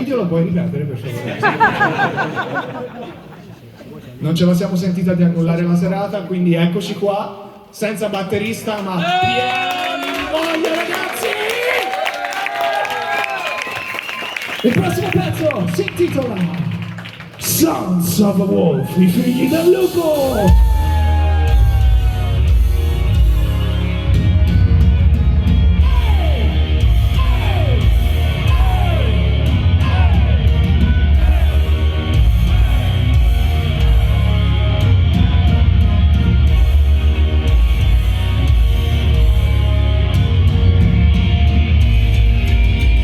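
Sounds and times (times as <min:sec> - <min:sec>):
live heavy metal band: 0:20.2 - 0:43.0.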